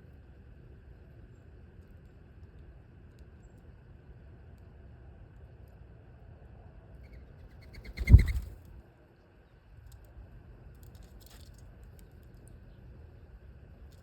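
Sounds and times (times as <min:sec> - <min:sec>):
bird wings flapping: 0:07.6 - 0:08.6.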